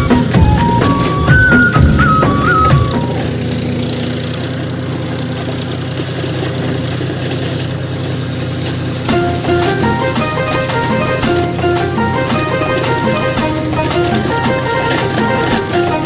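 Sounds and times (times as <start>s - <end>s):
music: 0.0s - 3.3s, 9.1s - 16.0s
song playing: 0.0s - 3.3s, 9.1s - 16.0s
tractor engine running: 0.0s - 16.0s.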